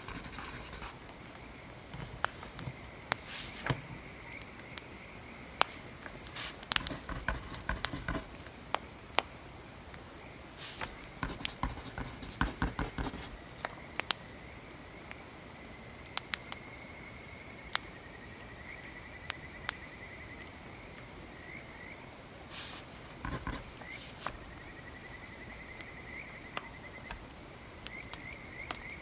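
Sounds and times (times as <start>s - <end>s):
pencil writing on paper: 0.0s - 1.0s, 1.9s - 3.8s, 6.1s - 8.4s, 10.6s - 13.4s, 22.5s - 24.4s.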